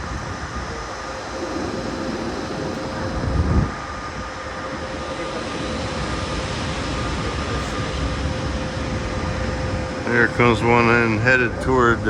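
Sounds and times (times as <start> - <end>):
low burst: 0.0 - 5.8
electric train rumbling: 0.0 - 12.0
faint train whine: 0.0 - 12.0.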